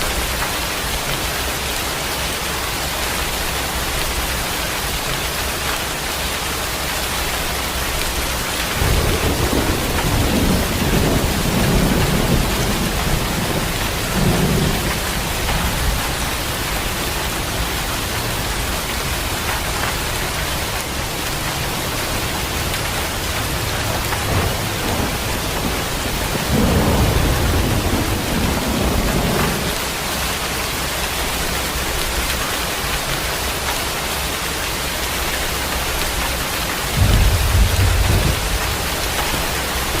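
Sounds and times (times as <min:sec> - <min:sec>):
heavy rain: 0:00.0 - 0:40.0
thunder rumbling: 0:07.9 - 0:30.0, 0:36.1 - 0:40.0.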